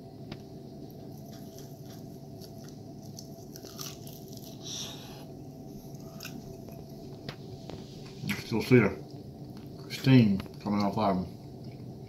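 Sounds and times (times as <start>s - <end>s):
man chewing meat: 0.8s - 8.3s.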